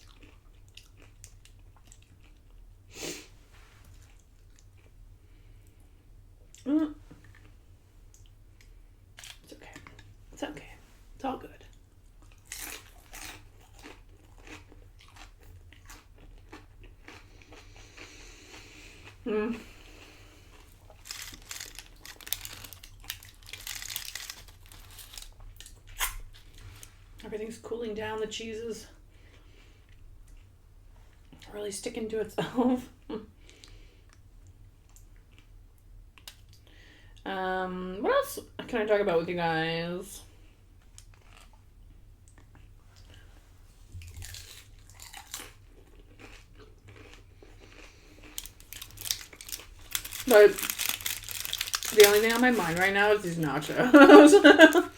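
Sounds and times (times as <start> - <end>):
chewing crunchy chips: 0.0 - 2.7, 6.5 - 10.2, 11.7 - 26.9, 41.0 - 41.6, 44.0 - 54.9.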